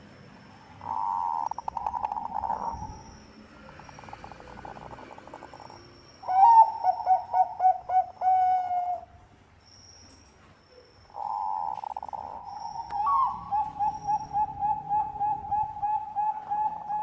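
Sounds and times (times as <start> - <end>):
dove cooing: 0.8 - 3.0, 3.7 - 9.1, 11.2 - 17.0.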